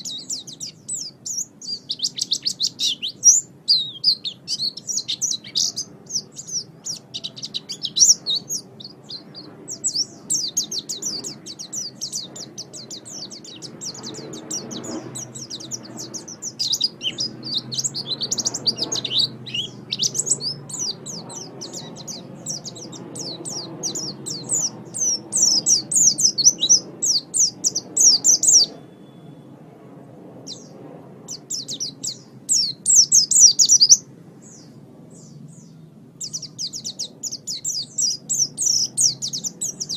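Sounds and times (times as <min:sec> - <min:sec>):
bird twittering song: 0:00.0 - 0:29.4, 0:30.4 - 0:39.9.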